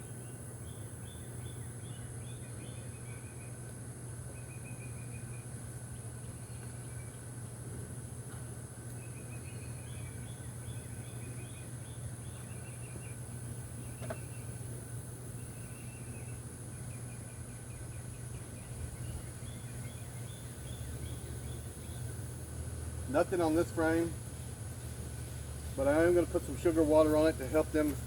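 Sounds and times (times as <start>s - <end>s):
small birds chirping: 8.8s - 28.0s
honeybees buzzing: 13.1s - 28.0s.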